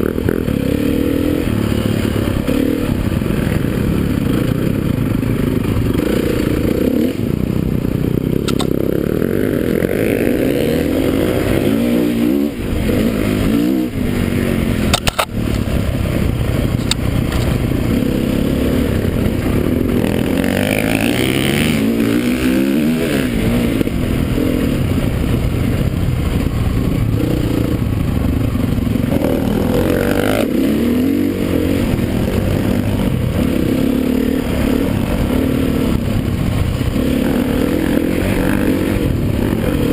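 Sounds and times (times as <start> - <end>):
motocross bike engines revving: 0.0 - 39.9
sharp clicks: 8.4 - 8.8, 14.9 - 15.3.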